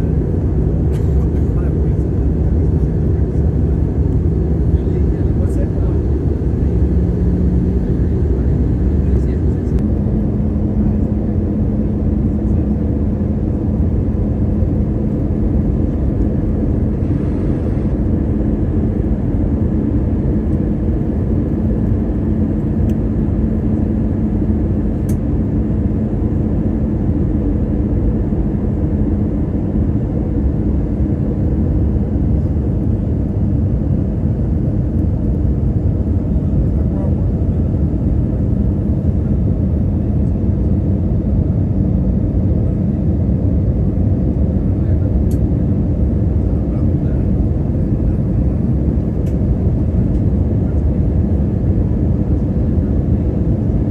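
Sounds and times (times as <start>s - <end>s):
hum: 0.0s - 23.8s
jet cabin engine drone: 0.0s - 53.9s.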